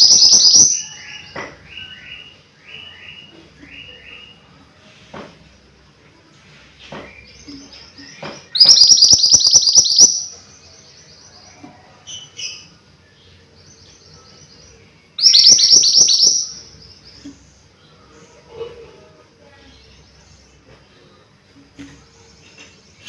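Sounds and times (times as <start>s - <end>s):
soft high bird chirps: 0.0s - 4.5s, 7.1s - 12.8s, 13.7s - 17.9s
songbird chattering notes: 7.4s - 10.4s, 15.2s - 16.6s.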